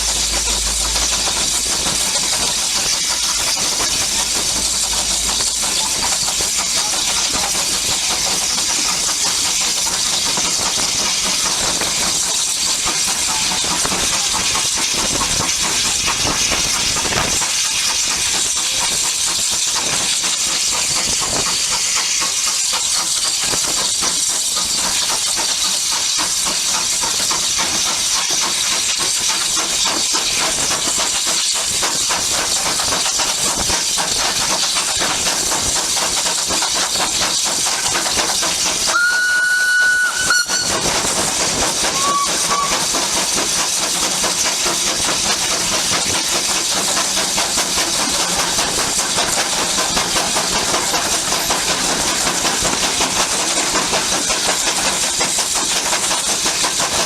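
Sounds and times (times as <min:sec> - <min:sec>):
locomotive steam hiss: 0:00.0 - 0:57.0.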